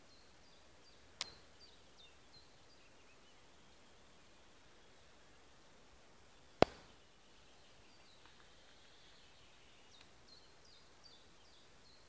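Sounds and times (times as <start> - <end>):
faint steady hiss: 0.0 - 12.0
faint small bird calls: 6.2 - 12.0.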